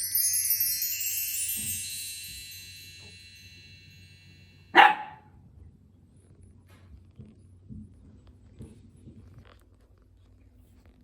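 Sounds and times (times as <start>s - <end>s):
bell tree chimes: 0.0s - 4.9s.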